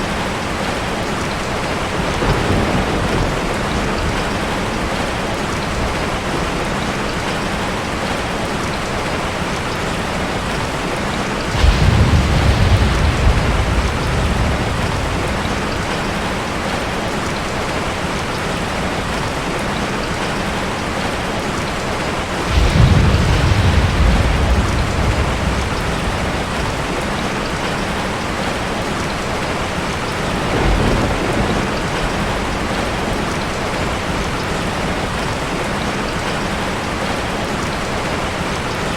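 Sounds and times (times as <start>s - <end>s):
heavy rain: 0.0s - 38.9s
thunder rumbling: 1.5s - 7.0s, 10.1s - 19.2s, 22.2s - 37.2s.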